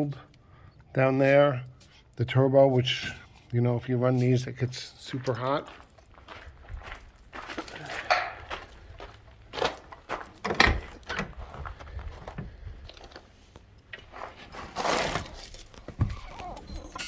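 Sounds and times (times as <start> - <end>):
handling knocks and clunks: 7.9 - 8.7, 9.6 - 13.1.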